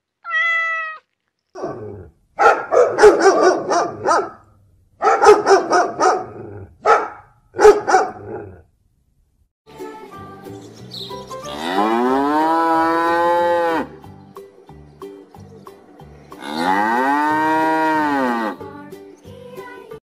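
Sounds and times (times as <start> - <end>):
dog barking in bursts: 1.6 - 4.4, 5.0 - 8.5.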